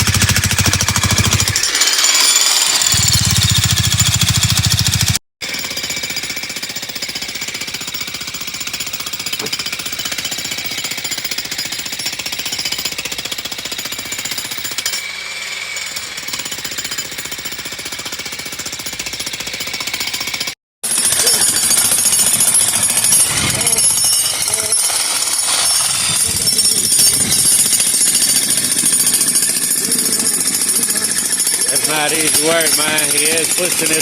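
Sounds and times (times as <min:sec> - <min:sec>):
jackhammer breaking rock: 0:00.0 - 0:15.1, 0:15.8 - 0:34.0.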